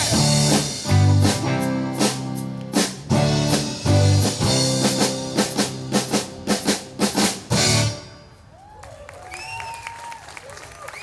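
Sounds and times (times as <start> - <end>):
drum and band accented hits: 0.0 - 8.4
live rock band playing: 0.0 - 8.4.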